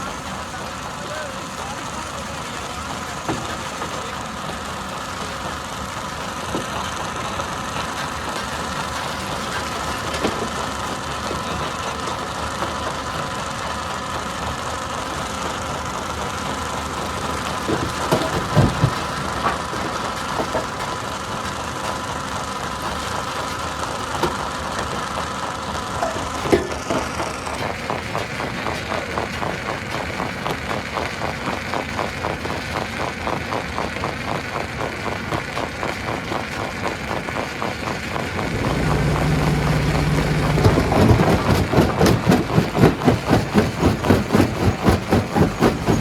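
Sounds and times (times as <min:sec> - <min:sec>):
stone crusher humming: 0:37.9 - 0:46.0
heavy clunks: 0:38.4 - 0:43.8.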